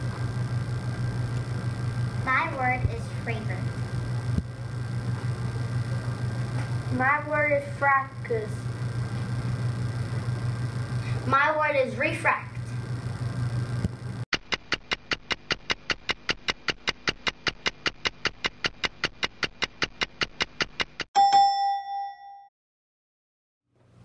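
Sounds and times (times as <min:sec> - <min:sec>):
faint room hum: 0:00.0 - 0:14.2
rapid even ticking: 0:13.8 - 0:21.1
bell ding: 0:21.2 - 0:22.5.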